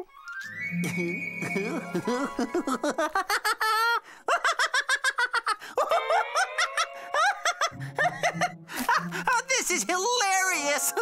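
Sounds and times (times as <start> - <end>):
cartoon character high-pitched laughter: 2.4 - 8.5.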